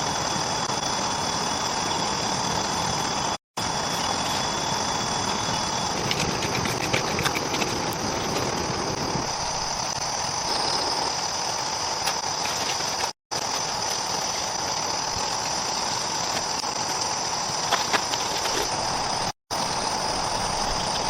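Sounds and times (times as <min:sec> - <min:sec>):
continuous noisy background: 0:00.0 - 0:21.0
insects chorus: 0:00.0 - 0:21.0.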